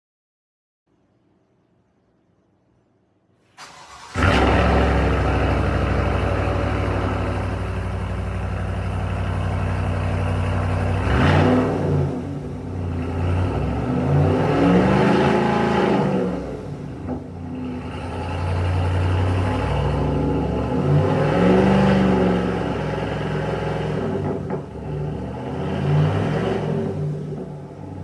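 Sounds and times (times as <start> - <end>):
engine cranking: 3.6 - 7.5
exhaust note rising and falling: 3.6 - 27.2
engine idling loudly: 4.2 - 11.3.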